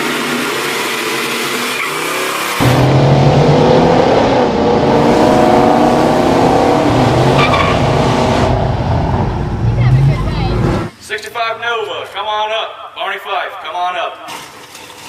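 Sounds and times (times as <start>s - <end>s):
car engine at high revs: 0.0s - 10.9s.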